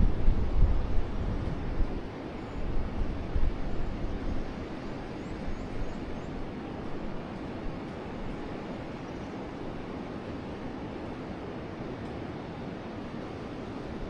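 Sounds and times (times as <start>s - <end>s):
wind gusts on microphone: 0.0s - 8.9s.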